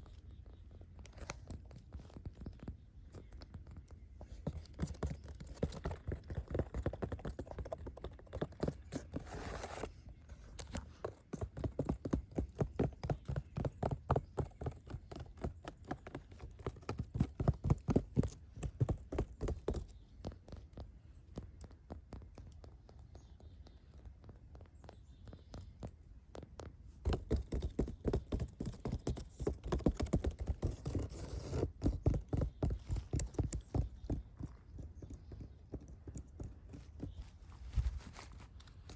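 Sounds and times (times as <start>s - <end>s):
scratchy rustle: 8.8s - 11.1s, 36.9s - 38.9s.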